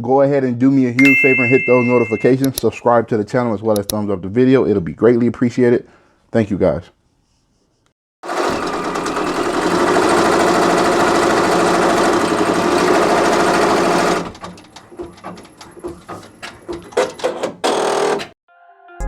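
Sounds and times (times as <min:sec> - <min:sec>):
embroidery machine stitching: 0:08.2 - 0:18.4.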